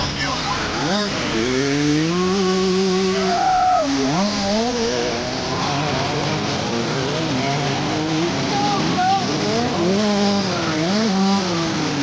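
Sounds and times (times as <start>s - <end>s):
dirt bike engine revving: 0.0s - 12.0s
faint dirt bikes running: 0.0s - 12.0s.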